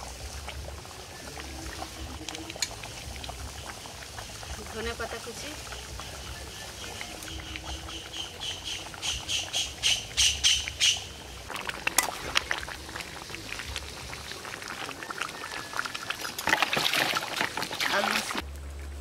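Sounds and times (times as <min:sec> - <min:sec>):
bird calling repeated notes: 0:05.8 - 0:11.2
low steady rumble: 0:18.4 - 0:19.0.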